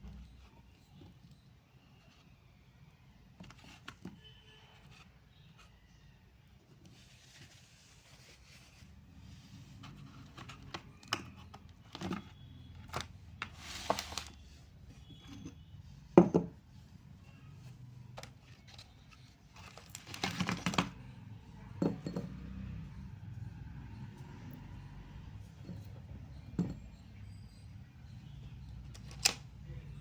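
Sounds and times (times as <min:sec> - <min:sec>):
packaging rustling: 0:12.9 - 0:14.4, 0:18.2 - 0:20.9.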